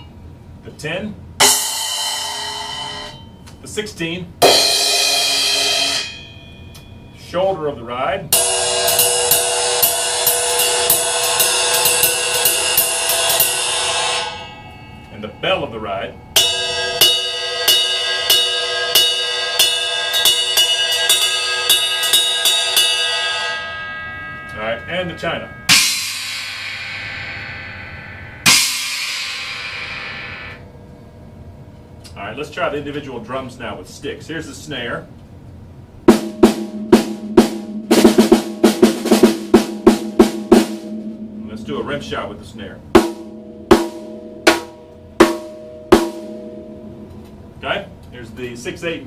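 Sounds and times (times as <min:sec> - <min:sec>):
ride cymbal bell struck with drumsticks: 0:04.4 - 0:07.1, 0:08.4 - 0:27.4.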